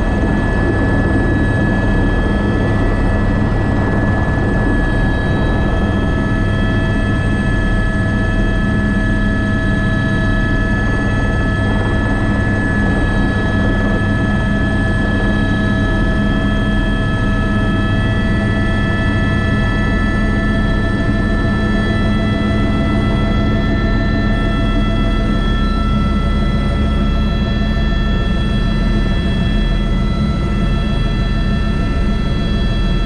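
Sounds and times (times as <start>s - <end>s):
helicopter rotor drone: 0.0s - 33.0s
helicopter turbine whine: 0.0s - 33.0s.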